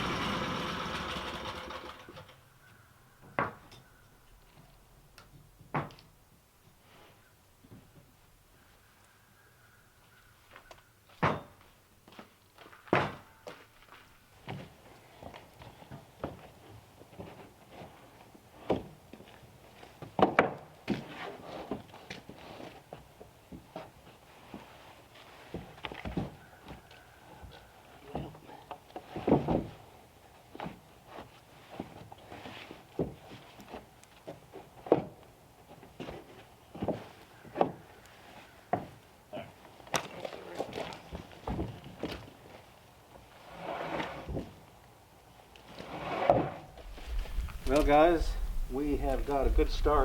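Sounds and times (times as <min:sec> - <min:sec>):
engine running: 0:00.0 - 0:02.1.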